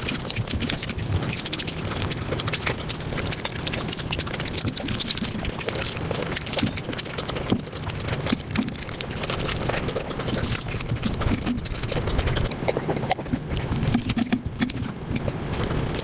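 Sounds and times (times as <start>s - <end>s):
sped-up chewing and mouth smacks: 0.0s - 16.0s.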